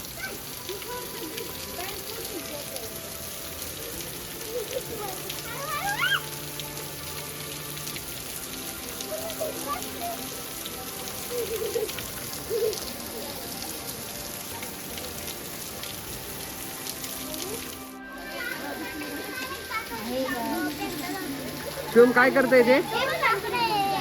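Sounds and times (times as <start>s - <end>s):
water dripping from rock: 0.0s - 24.0s
faint voices: 16.7s - 24.0s.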